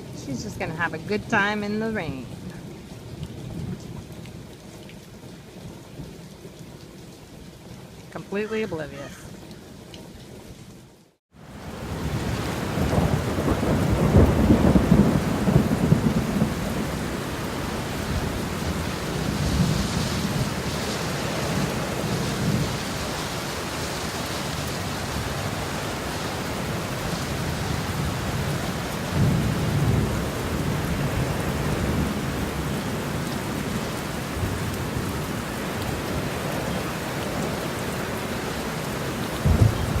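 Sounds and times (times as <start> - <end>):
steady rain falling: 0.0 - 40.0
rolling thunder: 11.7 - 22.9, 26.7 - 33.0, 39.4 - 40.0.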